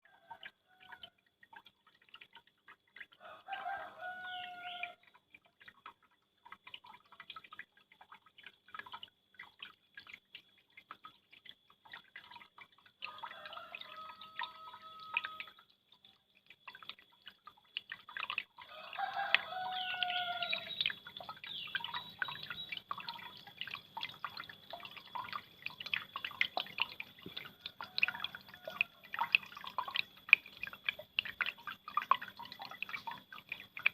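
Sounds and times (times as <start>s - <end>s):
water dripping and splashing: 0.0s - 33.9s
rooster crowing: 3.2s - 5.0s, 13.1s - 15.5s, 18.7s - 20.7s.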